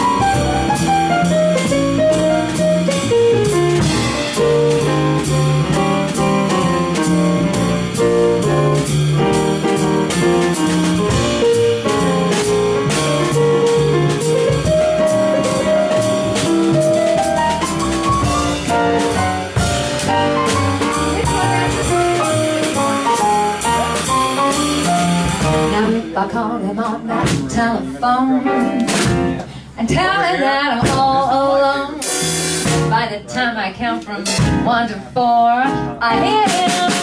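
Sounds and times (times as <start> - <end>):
melodic lead line: 0.0 - 26.1
bass: 0.0 - 37.0
drum kit beat: 0.0 - 37.0
piano: 0.0 - 37.0.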